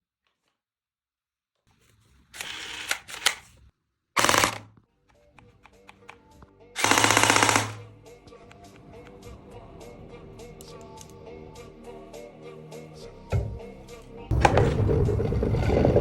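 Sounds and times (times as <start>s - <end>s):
toy gun clicking: 2.4s - 3.4s, 4.2s - 4.7s, 6.8s - 7.8s
toy gun firing bursts: 2.4s - 3.4s, 4.2s - 4.7s, 6.8s - 7.8s
background music: 4.2s - 16.0s.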